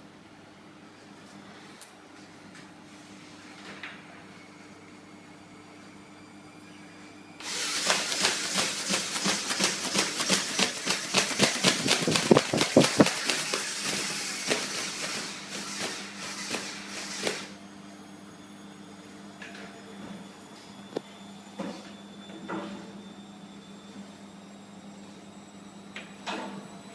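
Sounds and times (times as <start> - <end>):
flapping-wing mechanism clicking: 7.8 - 15.9.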